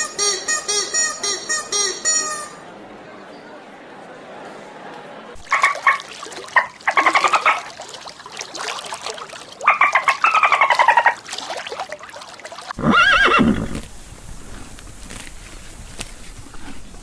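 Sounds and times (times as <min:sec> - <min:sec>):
horse whinnying: 0:12.8 - 0:13.8.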